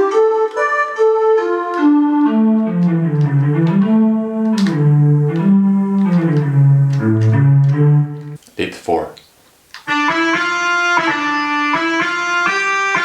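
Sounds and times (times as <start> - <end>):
synthesizer lead melody: 0.0 - 8.4
lower moving bass line: 3.0 - 8.4.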